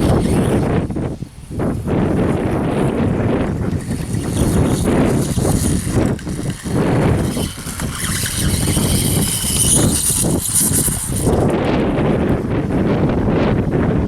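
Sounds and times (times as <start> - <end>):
electric motor whining: 0.0 - 1.1, 2.2 - 11.8
wind noise on microphone: 0.0 - 14.0.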